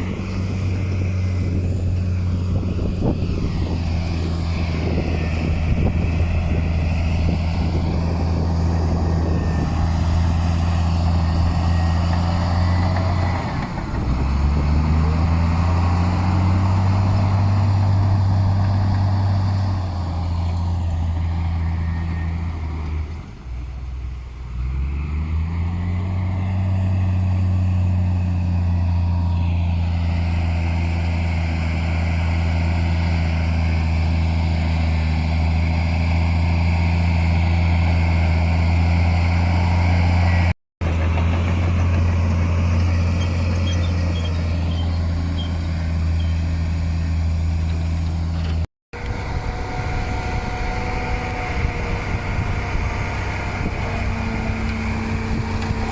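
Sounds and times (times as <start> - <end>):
heavy diesel engine revving: 0.0 - 55.9.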